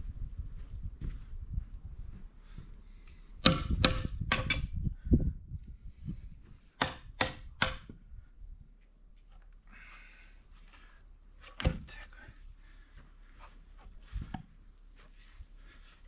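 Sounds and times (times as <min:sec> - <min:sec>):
hand tool knocking on wood: 0:03.4 - 0:04.6.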